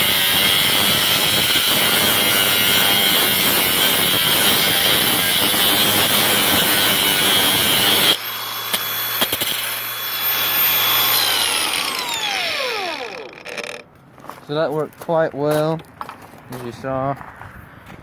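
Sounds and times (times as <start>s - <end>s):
angle grinder cutting metal: 0.0s - 13.9s
grinder running unloaded whine: 0.0s - 13.9s.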